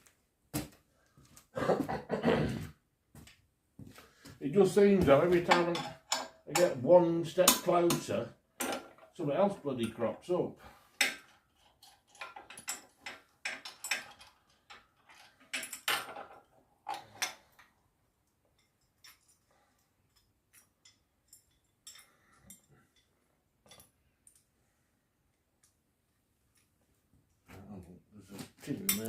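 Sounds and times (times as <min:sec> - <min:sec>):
metal tools clinking and rattling: 0:05.2 - 0:09.2, 0:11.0 - 0:17.7, 0:18.5 - 0:24.4, 0:28.8 - 0:29.0.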